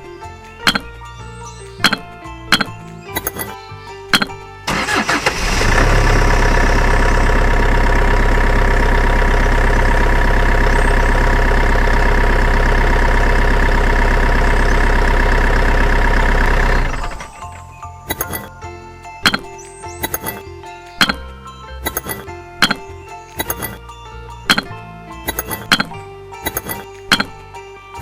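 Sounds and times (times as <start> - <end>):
engine running steadily: 4.2 - 17.5.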